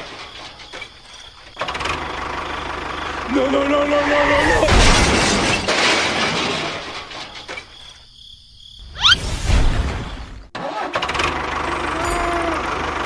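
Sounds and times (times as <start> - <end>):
engine running steadily: 11.0 - 13.0.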